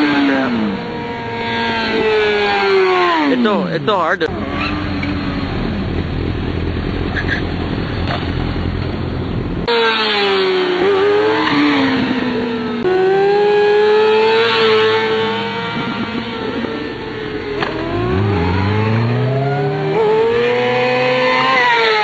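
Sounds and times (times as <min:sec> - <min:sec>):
sport bike engine revving: 0:00.0 - 0:07.6, 0:09.6 - 0:22.0
wind noise: 0:04.3 - 0:09.7, 0:15.4 - 0:19.2.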